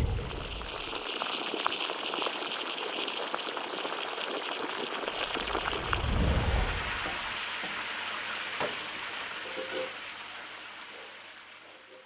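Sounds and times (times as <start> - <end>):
low rumble: 0.0 - 1.0, 5.2 - 7.1
steamer boiling with crackling hiss: 0.0 - 12.0.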